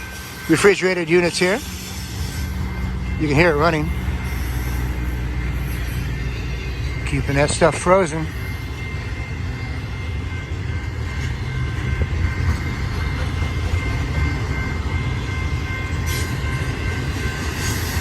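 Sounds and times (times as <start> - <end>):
train cars rumbling past: 0.0 - 18.0.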